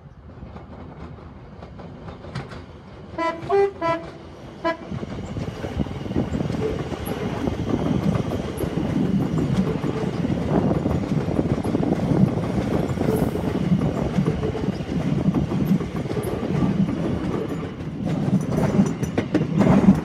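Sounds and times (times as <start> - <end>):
train rumble and wheel noise: 0.0 - 20.0
two-tone train horn: 3.2 - 5.0.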